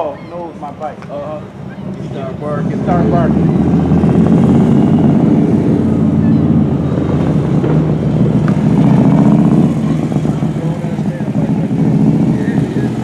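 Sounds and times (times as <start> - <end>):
loud motorcycle engine running: 2.6 - 13.0.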